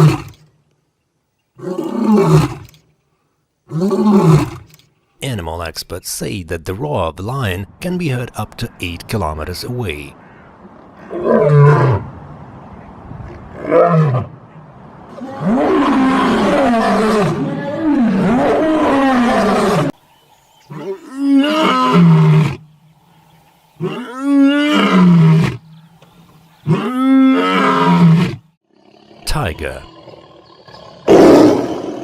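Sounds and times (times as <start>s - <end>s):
lion roaring: 15.1s - 19.9s, 29.8s - 32.0s.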